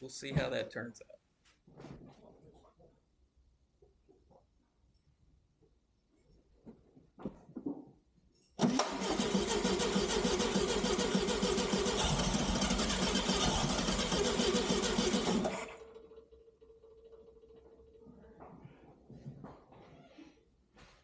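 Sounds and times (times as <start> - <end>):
car engine cranking: 8.6 - 17.6.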